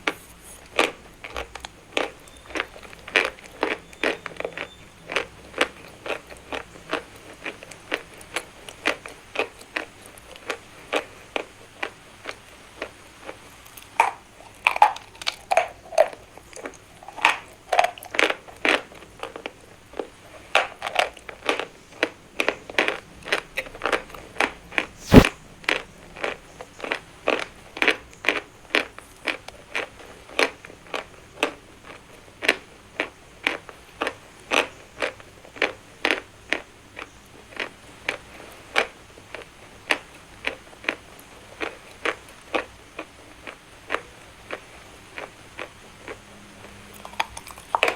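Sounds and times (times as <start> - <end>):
chewing crunchy chalk: 25.0 - 25.3, 45.2 - 47.9
sharp loud crack: 25.0 - 25.3.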